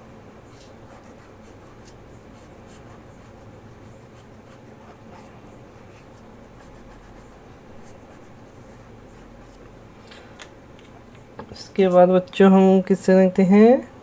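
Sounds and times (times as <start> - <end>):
low steady hum: 0.0 - 14.0
colouring tool scratching paper: 0.5 - 9.7.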